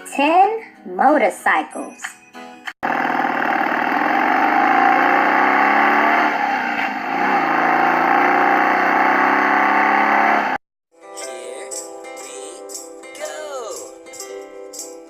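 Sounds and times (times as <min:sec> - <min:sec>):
motorcycle engine revving: 0:02.8 - 0:10.6.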